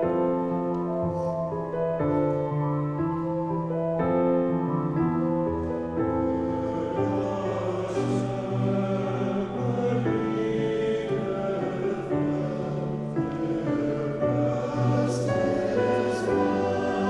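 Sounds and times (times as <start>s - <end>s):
choir singing a hymn: 4.4s - 17.0s.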